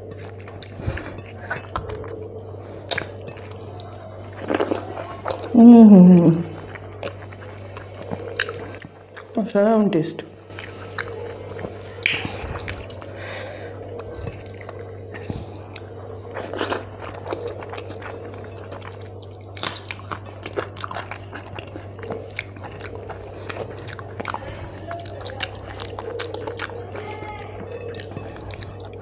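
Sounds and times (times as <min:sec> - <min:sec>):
steady low hum: 0:00.0 - 0:29.0
mouth chewing with wet clicks: 0:06.6 - 0:09.4, 0:10.2 - 0:29.0.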